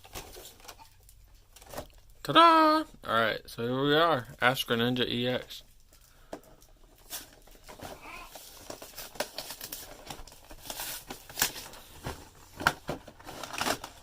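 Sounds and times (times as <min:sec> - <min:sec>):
packaging crinkling and rustling: 0:00.0 - 0:02.2, 0:05.7 - 0:14.0.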